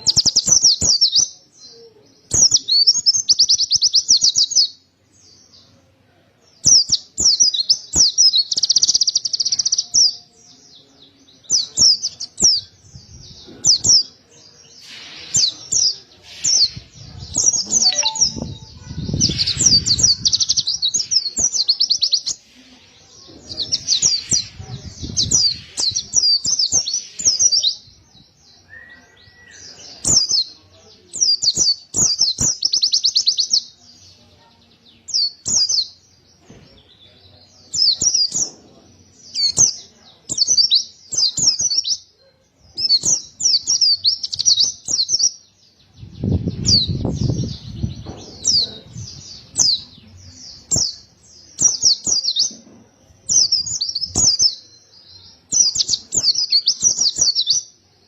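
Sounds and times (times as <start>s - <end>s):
bird warbling high-pitched: 17.5s - 20.5s.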